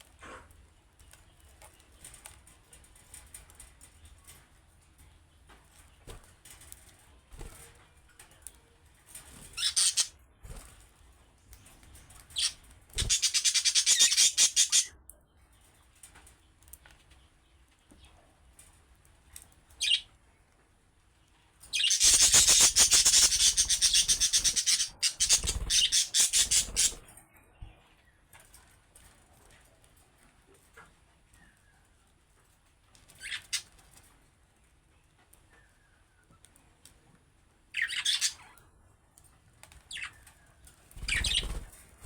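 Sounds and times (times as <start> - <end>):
budgerigars chattering and chirping: 9.6 - 10.1, 12.4 - 14.9, 21.8 - 27.0, 37.8 - 38.5, 41.0 - 41.7.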